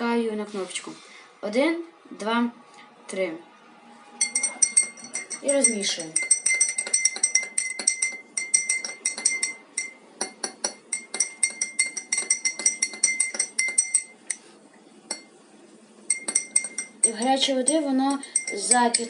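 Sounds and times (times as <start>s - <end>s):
teaspoon clinking against cup: 4.2s - 14.5s, 15.1s - 15.3s, 16.1s - 19.0s.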